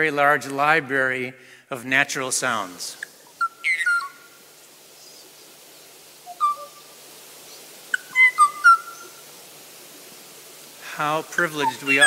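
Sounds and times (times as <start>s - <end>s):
whistled birdsong over loudspeakers: 6.3s - 6.7s, 8.2s - 9.1s.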